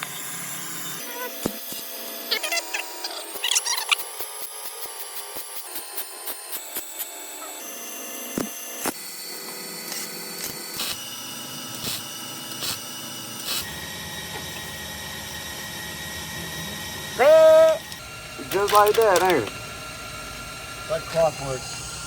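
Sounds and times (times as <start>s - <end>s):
welder hissing and crackling: 11.7s - 13.7s.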